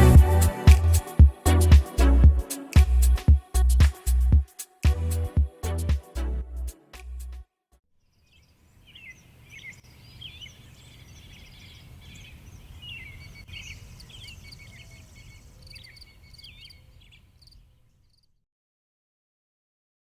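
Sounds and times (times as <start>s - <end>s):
low steady rumble: 0.0s - 7.4s
songbirds chirping and trilling: 8.0s - 18.3s.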